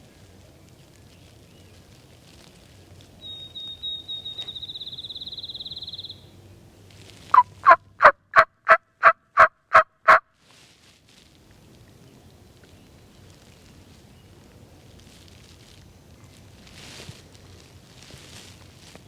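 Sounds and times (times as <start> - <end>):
songbird trill: 0.0 - 2.4, 3.2 - 7.7, 11.6 - 14.6
wild turkey yelps: 7.3 - 10.2.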